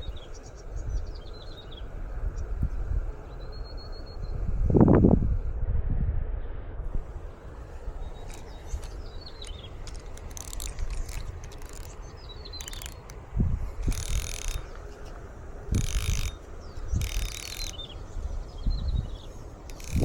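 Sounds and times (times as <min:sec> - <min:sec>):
fishing reel whirring and clicking: 0:07.7 - 0:18.2, 0:19.4 - 0:20.0
bird chirping: 0:07.8 - 0:20.0.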